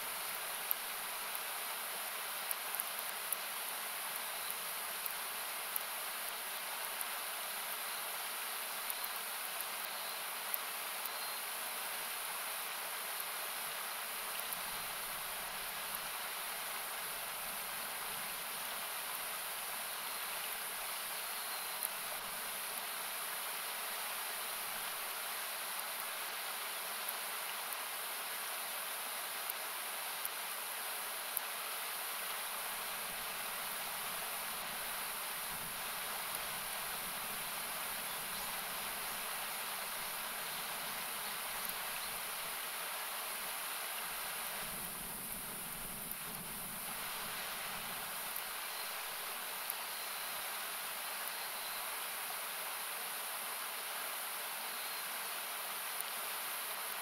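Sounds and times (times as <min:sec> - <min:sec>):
campfire crackling and popping: 0:00.2 - 0:01.5, 0:44.1 - 0:48.6
river rushing: 0:21.8 - 0:57.0.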